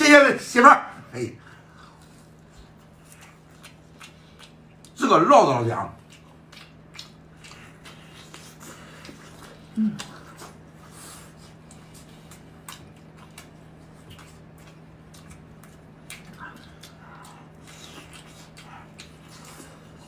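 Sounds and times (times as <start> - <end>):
steady low hum: 0.0 - 20.0
chewing and mouth smacks: 1.7 - 5.0, 6.0 - 20.0
person humming mm: 9.6 - 10.3.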